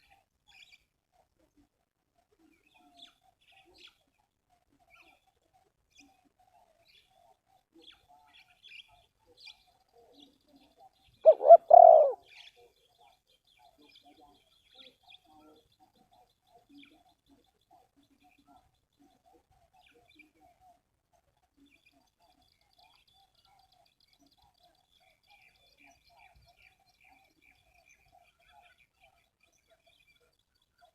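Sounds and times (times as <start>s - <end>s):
faint small-bird chirps: 0.0s - 30.9s
dove cooing: 11.2s - 12.3s.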